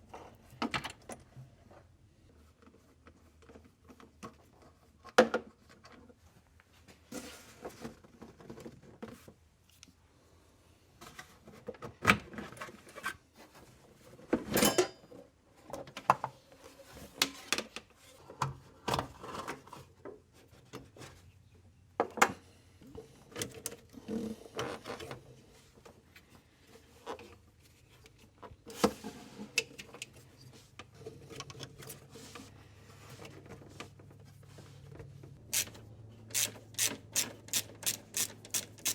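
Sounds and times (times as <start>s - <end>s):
hand tools clicking and clanking: 36.4s - 38.9s.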